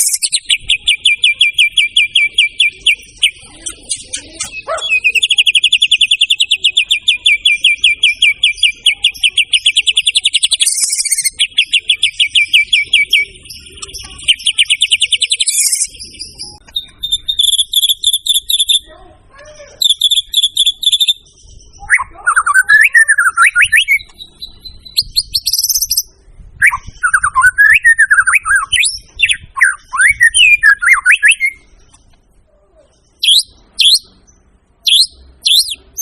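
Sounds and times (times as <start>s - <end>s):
bird singing rapid sharp notes: 0.0s - 19.0s, 19.6s - 32.4s, 33.0s - 36.0s.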